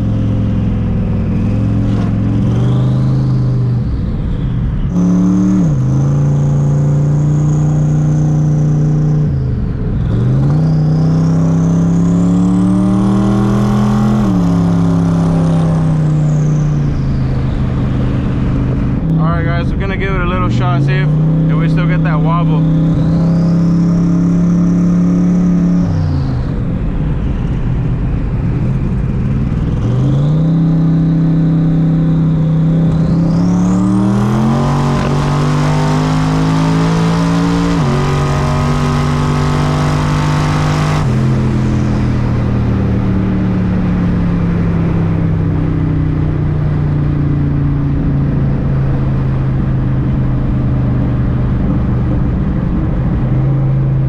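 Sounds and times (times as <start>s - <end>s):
engine at full throttle: 0.0s - 54.0s
man talking: 19.1s - 22.7s.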